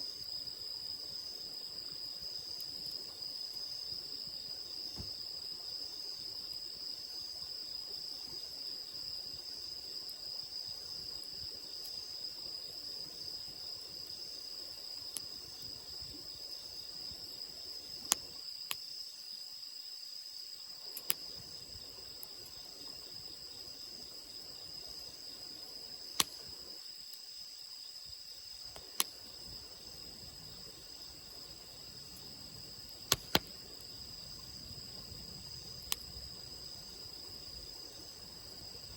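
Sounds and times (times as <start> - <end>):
insects chirring: 0.0 - 38.9
campfire crackling pops: 18.0 - 18.8, 20.9 - 21.5, 26.1 - 26.7, 28.7 - 29.3, 32.1 - 36.4.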